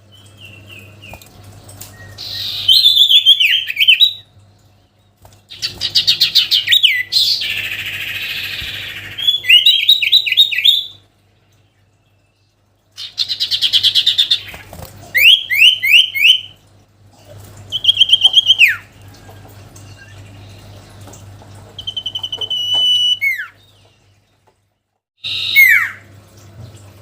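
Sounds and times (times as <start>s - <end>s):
songbird singing trills and whistles: 1.9s - 4.3s, 5.6s - 11.0s, 15.2s - 16.6s, 17.7s - 18.9s, 21.8s - 23.9s, 25.2s - 26.0s.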